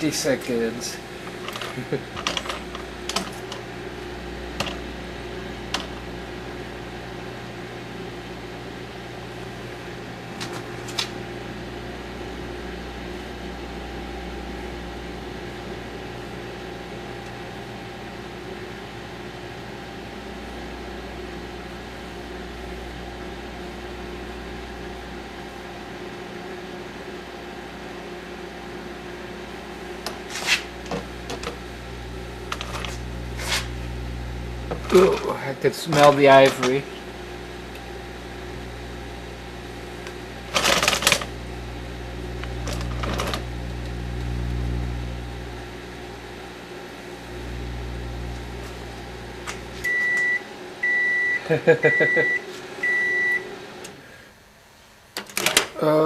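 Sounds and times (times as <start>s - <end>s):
microwave oven humming: 0.0s - 56.0s.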